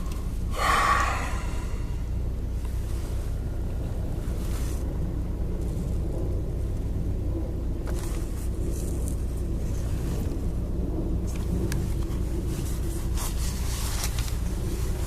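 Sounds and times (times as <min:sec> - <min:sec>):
engine and road noise rumble: 0:00.0 - 0:15.0
hiss: 0:00.5 - 0:02.0.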